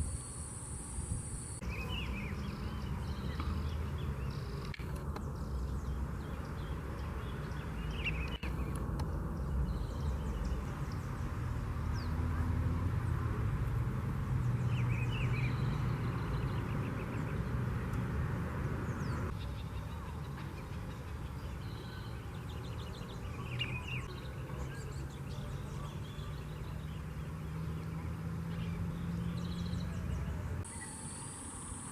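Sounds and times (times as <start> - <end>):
bird chirps: 0.0 - 12.2, 14.6 - 17.6, 18.8 - 31.9.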